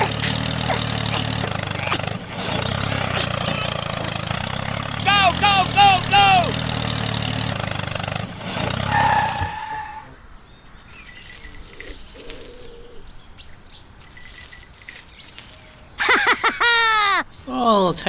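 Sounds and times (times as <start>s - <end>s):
small tractor engine running: 0.0s - 9.4s.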